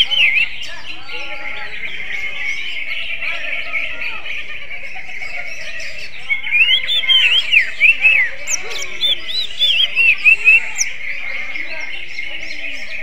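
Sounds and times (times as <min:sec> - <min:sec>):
bird singing whistled notes: 0:06.1 - 0:11.1.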